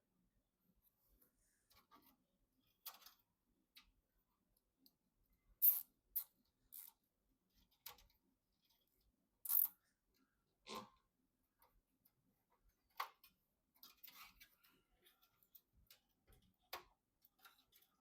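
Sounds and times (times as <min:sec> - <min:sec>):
computer parts clicking and rustling: 0:02.7 - 0:03.3, 0:12.9 - 0:18.0.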